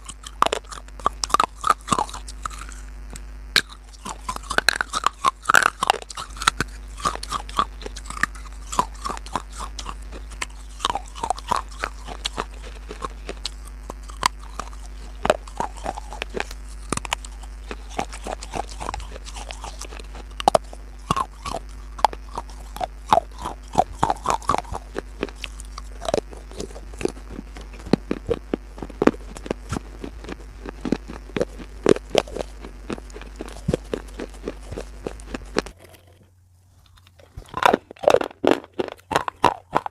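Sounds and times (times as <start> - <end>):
chewing crunchy food: 0.0 - 39.9
faint low hum: 0.0 - 39.9.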